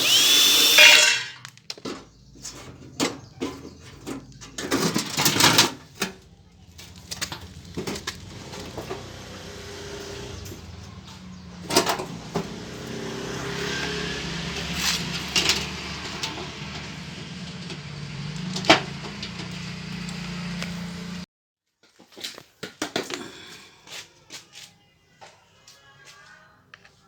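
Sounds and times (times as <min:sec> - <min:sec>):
fogging machine engine buzzing: 0:00.0 - 0:01.4, 0:07.6 - 0:21.2.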